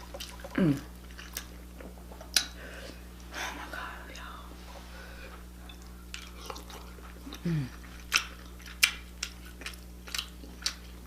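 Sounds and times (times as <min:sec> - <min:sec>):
person chewing with wet clicks: 0:00.0 - 0:03.3, 0:05.6 - 0:11.0
person humming mm: 0:00.5 - 0:00.9, 0:07.3 - 0:07.8.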